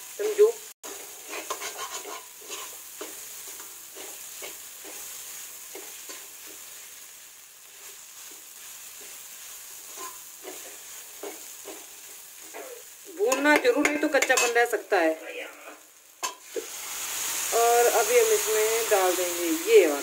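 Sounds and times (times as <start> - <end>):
mixture sizzling in a pan: 0.0 - 20.0
metal spoon scraping a pan: 0.8 - 7.1, 7.7 - 14.9, 15.7 - 17.5.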